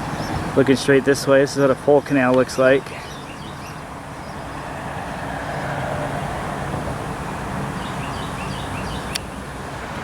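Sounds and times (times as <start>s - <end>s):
road traffic hum: 0.0s - 10.0s
small bird chirping: 7.8s - 9.4s.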